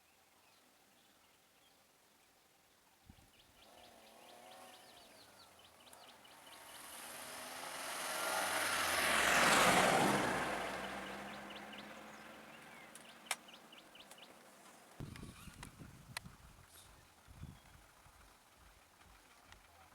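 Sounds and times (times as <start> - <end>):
birds chirping faintly: 0.0 - 15.7
vehicle passing close by: 3.6 - 15.0.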